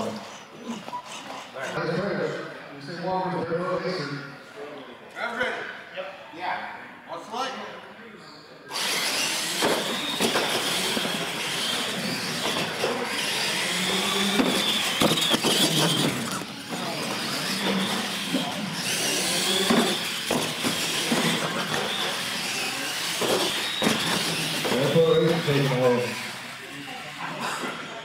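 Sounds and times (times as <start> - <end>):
toy truck motor whine: 0.0 - 1.8, 8.7 - 28.0.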